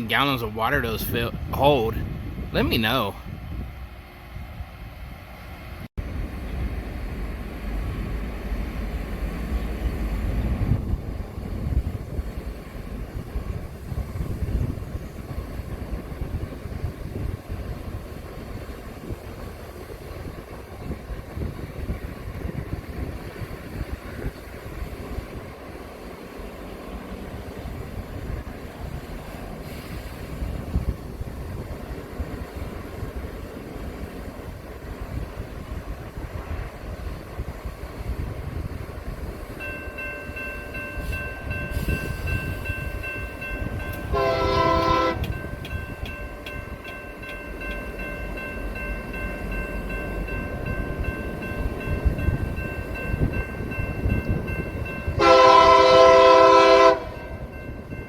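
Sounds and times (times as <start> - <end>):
train air horn blast: 44.1 - 45.3, 55.2 - 57.2.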